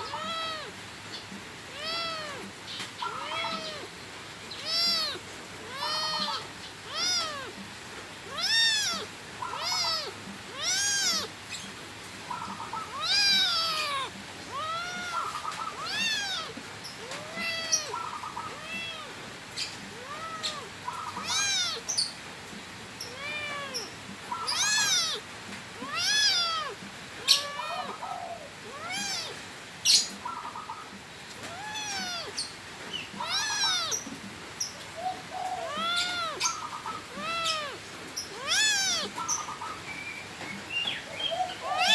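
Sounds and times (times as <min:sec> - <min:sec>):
cat meowing: 0:00.0 - 0:00.8, 0:01.7 - 0:07.6, 0:08.2 - 0:11.4, 0:12.5 - 0:22.0, 0:23.0 - 0:25.2, 0:25.8 - 0:29.4, 0:31.3 - 0:32.5, 0:33.1 - 0:34.2, 0:35.0 - 0:39.6, 0:41.5 - 0:41.9.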